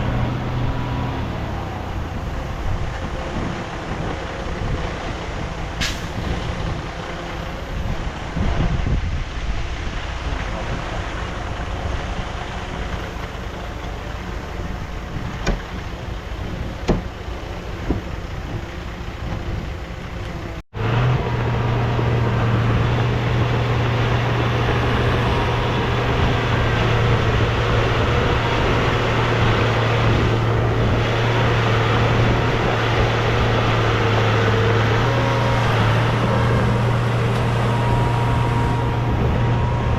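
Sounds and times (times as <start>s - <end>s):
heavy diesel engines running: 0.0s - 39.9s
steady engine drone with low hum: 0.0s - 39.9s
short knocks: 16.8s - 17.1s.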